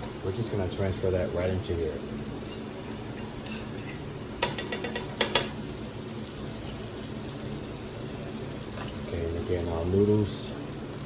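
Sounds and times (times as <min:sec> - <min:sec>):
metal utensil scraping a pan: 0:02.4 - 0:05.5.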